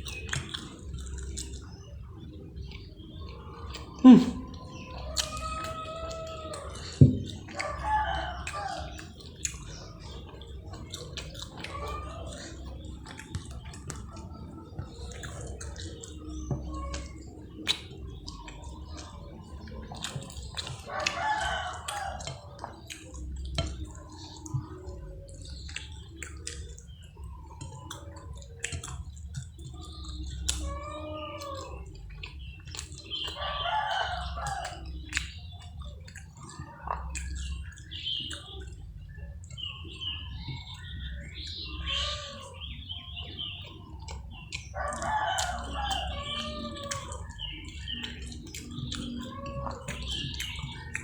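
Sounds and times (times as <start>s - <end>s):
chicken calls: 0.0s - 51.0s
person chewing and eating: 0.0s - 51.0s
small bird calls: 0.0s - 51.0s
rooster crowing: 7.6s - 8.9s, 20.8s - 22.4s, 33.4s - 34.8s, 44.8s - 47.4s.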